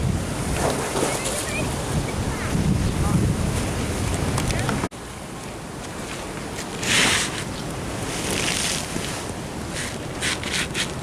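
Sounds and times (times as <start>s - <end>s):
wind buffeting microphone: 0.0s - 4.9s
waves splashing against sea wall: 0.0s - 11.0s.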